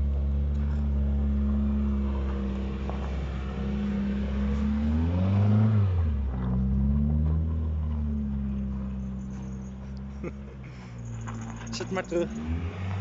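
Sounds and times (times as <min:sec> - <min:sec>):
race car engine idling: 0:00.0 - 0:04.9, 0:06.1 - 0:12.4
engine rev: 0:00.0 - 0:13.0.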